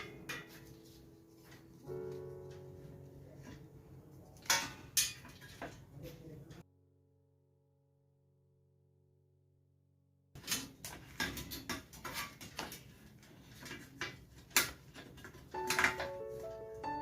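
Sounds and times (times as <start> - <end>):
background music with held notes: 0.0 - 4.8, 15.2 - 17.0.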